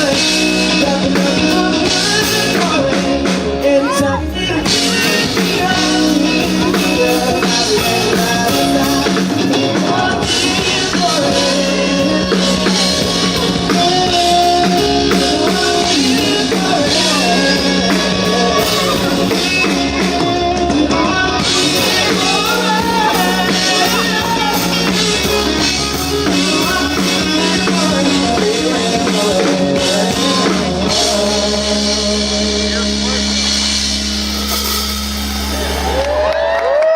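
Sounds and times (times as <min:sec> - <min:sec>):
person singing: 0:00.0 - 0:34.6
live rock band playing: 0:00.0 - 0:36.9.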